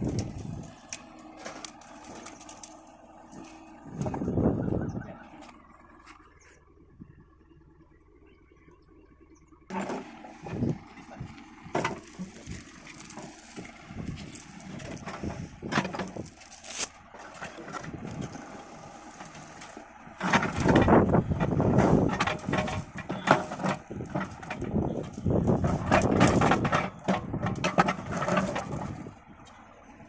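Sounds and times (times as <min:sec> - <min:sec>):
backhoe engine running: 0:00.0 - 0:30.0
bucket knocking and scraping: 0:11.7 - 0:18.4, 0:20.2 - 0:29.1.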